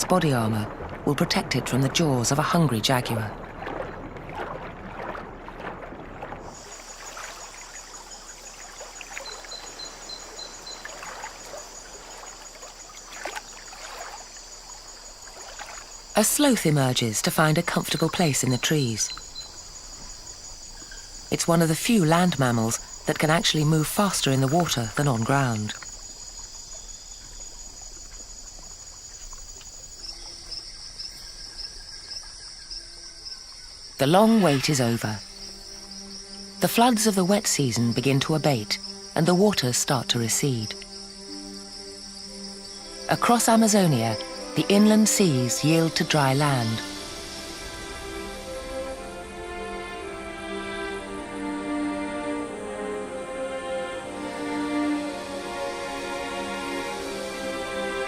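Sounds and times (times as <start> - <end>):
animal splashing in water: 0.0 - 16.5
pulsing insect call: 0.0 - 58.0
insects trilling: 6.0 - 58.0.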